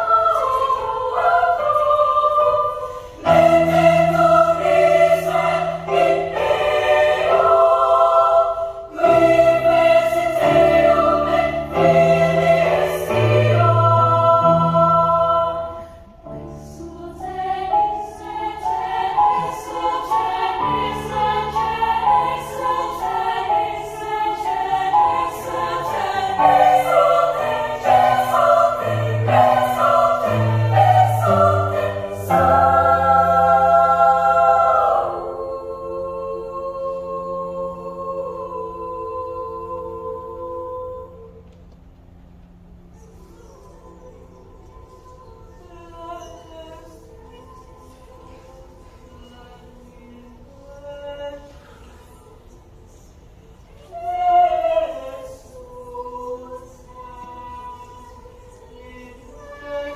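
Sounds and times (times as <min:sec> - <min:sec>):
children's choir singing: 0:00.0 - 0:41.8, 0:43.1 - 0:59.9.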